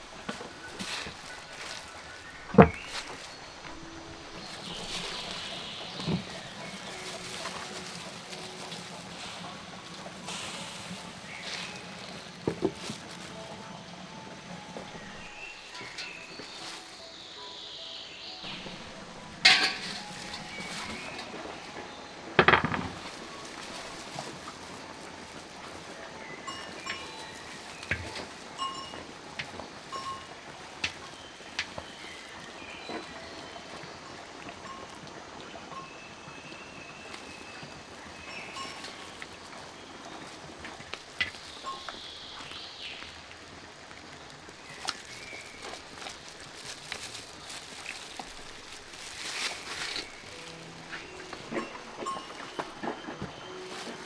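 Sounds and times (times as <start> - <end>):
cookware and utensils clattering: 0.0 - 17.0, 18.4 - 33.2, 44.6 - 54.0
background hiss: 0.0 - 54.0.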